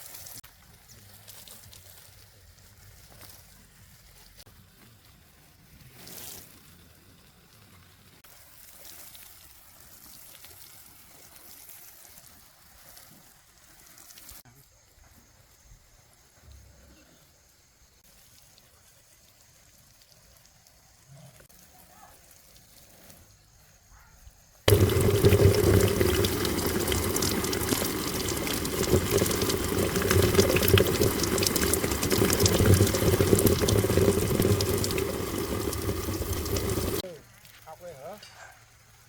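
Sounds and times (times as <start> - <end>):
water running loudly: 24.7 - 37.0.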